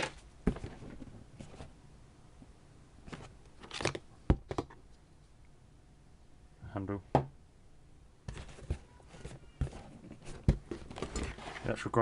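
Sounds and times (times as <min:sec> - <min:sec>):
paper and plastic rustling: 0:08.3 - 0:12.0.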